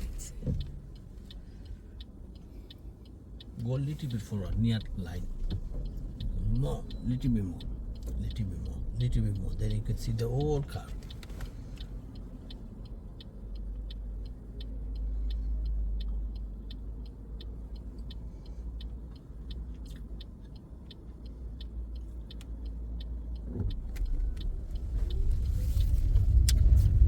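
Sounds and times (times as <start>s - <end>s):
car indicator ticking: 0.0s - 27.0s
car interior rumble: 0.0s - 27.0s.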